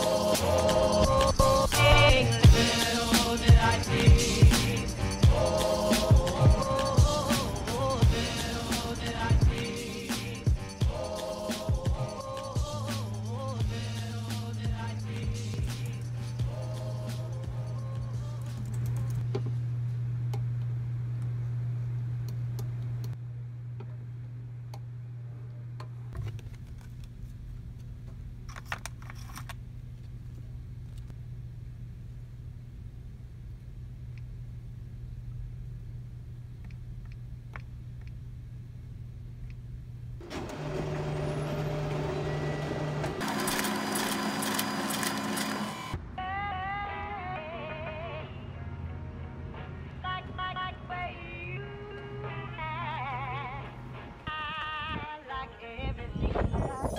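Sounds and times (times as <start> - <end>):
steady low hum: 0.0 - 40.2
printer motor hum: 40.2 - 46.0.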